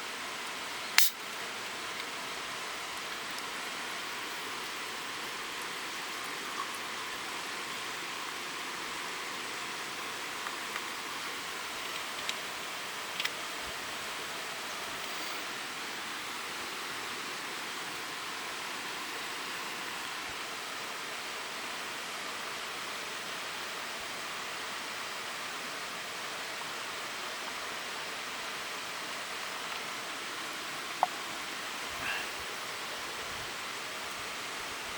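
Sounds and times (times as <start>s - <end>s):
single click: 1.0s - 1.2s.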